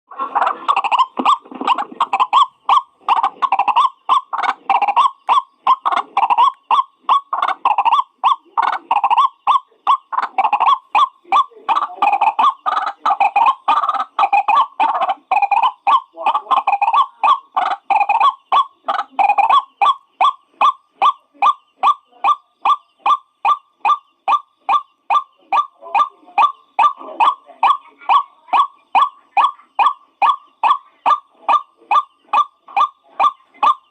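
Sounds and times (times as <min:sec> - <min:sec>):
waterhen harsh repeated calls: 0:00.1 - 0:33.9.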